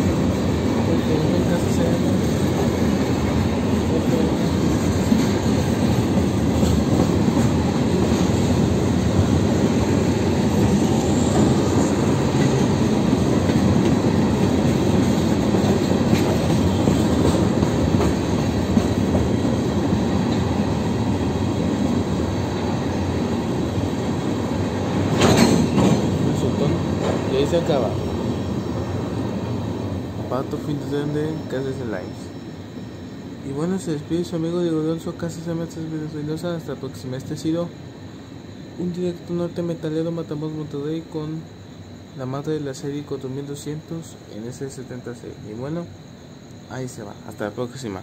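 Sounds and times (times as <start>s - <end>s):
rumble of train wheels on rail: 0.0s - 48.0s
wheels clicking over rail joints: 24.9s - 26.2s.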